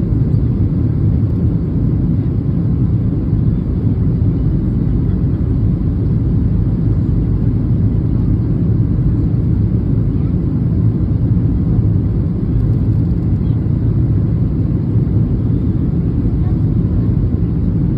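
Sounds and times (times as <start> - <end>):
airliner cabin engine rumble: 0.0 - 17.9.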